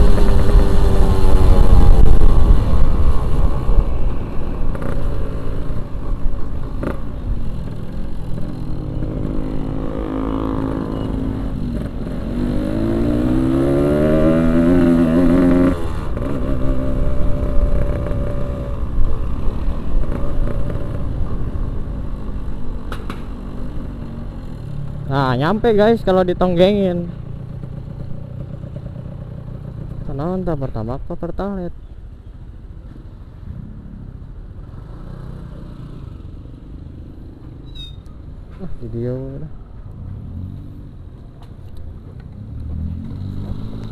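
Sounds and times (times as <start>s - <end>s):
motorcycle engine revving: 0.0s - 30.5s, 42.1s - 43.9s.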